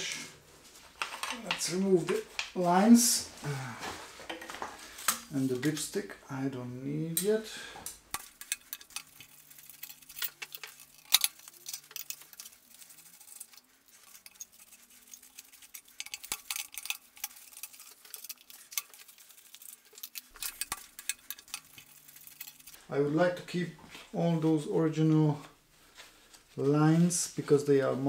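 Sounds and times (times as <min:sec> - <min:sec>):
metal tools clicking and clinking: 0:08.1 - 0:22.8.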